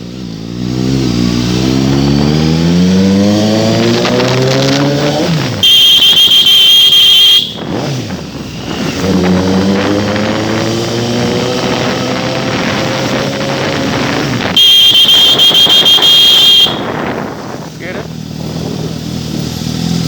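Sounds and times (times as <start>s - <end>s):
motorcycle engine through loud exhaust: 0.0s - 20.0s
high-pitched horn-like tone: 5.6s - 7.7s, 14.6s - 17.1s.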